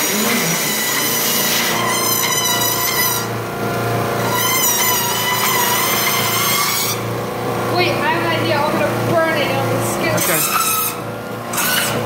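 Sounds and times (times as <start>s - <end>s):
tires squealing on belt: 0.0s - 3.4s, 4.2s - 7.1s, 10.2s - 12.0s
treadmill belt and motor running: 0.0s - 12.0s.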